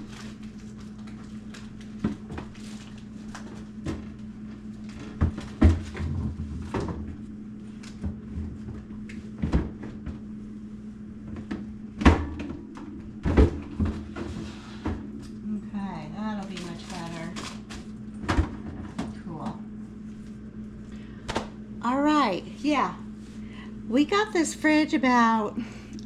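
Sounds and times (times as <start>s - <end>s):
low freezer hum: 0.0s - 26.0s
plastic bins knocking and sliding: 5.0s - 7.2s.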